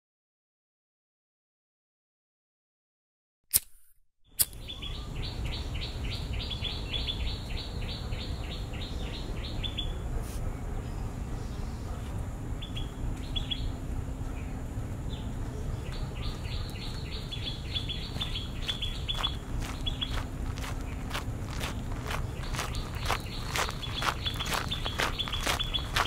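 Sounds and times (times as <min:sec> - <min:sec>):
sharp clicks: 0:03.5 - 0:04.6
songbirds chirping: 0:04.4 - 0:26.0
low outdoor rumble: 0:04.6 - 0:26.0.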